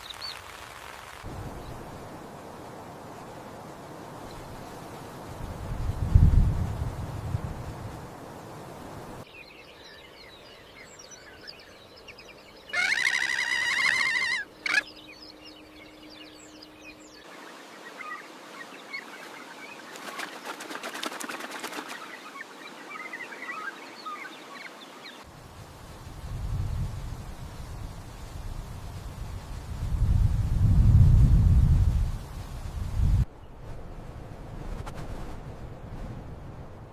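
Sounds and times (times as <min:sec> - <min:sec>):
birds chirping: 0:08.4 - 0:25.3
loud buzzy bird call: 0:12.6 - 0:20.6.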